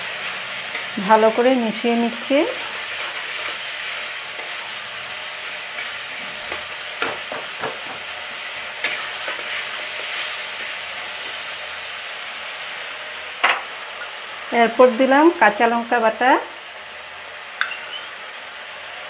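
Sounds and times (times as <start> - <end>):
spices sizzling in oil: 0.0 - 19.0
spatula scraping and knocking pan: 5.7 - 11.4.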